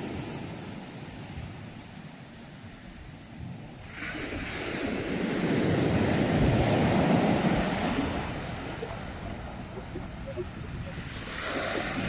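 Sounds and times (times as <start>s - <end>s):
ocean waves breaking: 3.7s - 12.0s.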